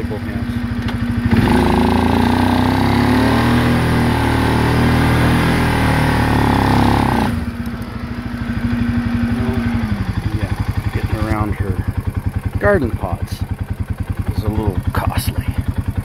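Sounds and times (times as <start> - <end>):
quad engine driving through snow: 0.0 - 16.0.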